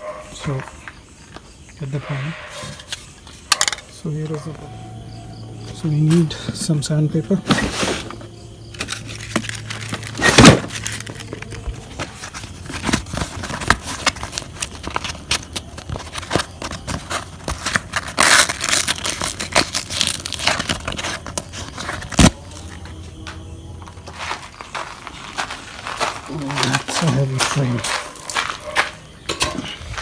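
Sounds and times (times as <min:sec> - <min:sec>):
crinkling and rustling: 0:05.5 - 0:30.0.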